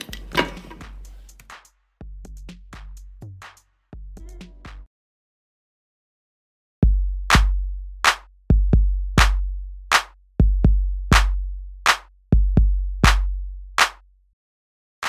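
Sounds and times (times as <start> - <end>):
drum machine beat: 0.0 - 4.9, 6.8 - 14.0.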